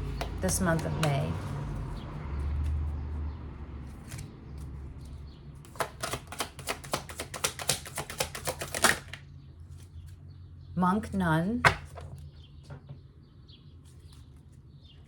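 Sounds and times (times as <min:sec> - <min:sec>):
cards being shuffled: 0:03.9 - 0:09.2.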